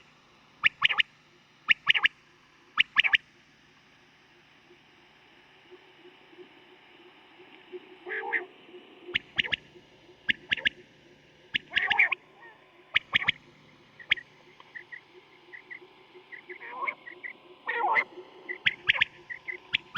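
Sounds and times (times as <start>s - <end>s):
quail calling sharp notes: 11.6s - 13.4s.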